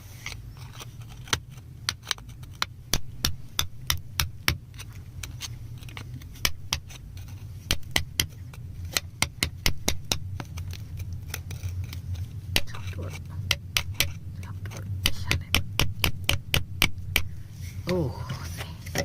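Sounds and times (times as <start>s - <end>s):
low steady hum: 0.0s - 19.0s
tool chipping at rock: 1.2s - 5.4s, 6.4s - 17.4s.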